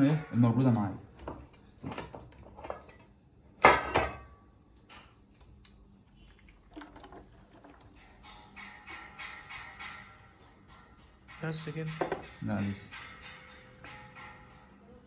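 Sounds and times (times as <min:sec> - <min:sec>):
metal clang ringing: 0:00.0 - 0:03.0, 0:03.6 - 0:05.1, 0:08.0 - 0:15.0
metal cookware knocking: 0:00.0 - 0:03.0, 0:03.6 - 0:04.3, 0:07.7 - 0:14.8.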